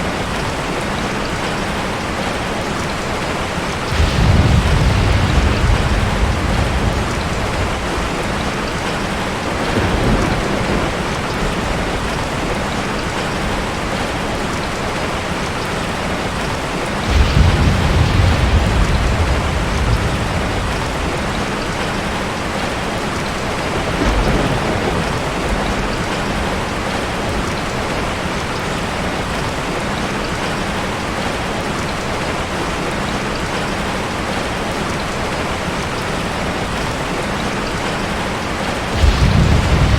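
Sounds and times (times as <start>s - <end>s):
heavy rain falling: 0.0s - 39.9s
distant thunder rumbles: 3.7s - 14.3s, 15.9s - 28.5s, 37.5s - 39.9s.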